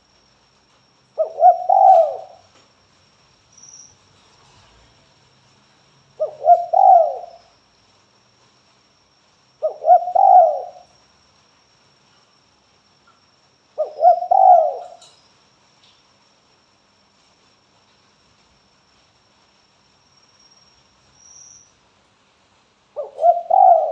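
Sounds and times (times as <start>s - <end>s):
dove cooing: 1.2s - 2.5s, 6.2s - 7.4s, 9.6s - 10.9s, 13.8s - 15.1s, 23.0s - 23.9s.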